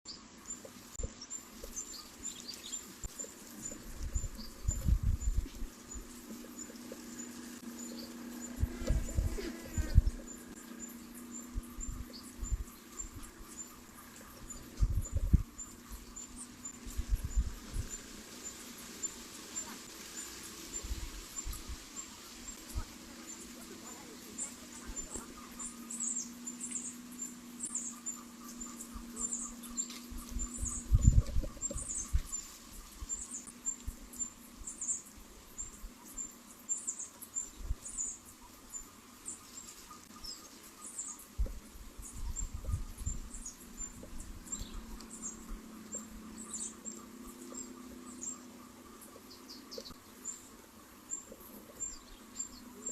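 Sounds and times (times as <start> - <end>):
bird chirping: 0.0 - 52.9
low thumps: 8.4 - 10.5.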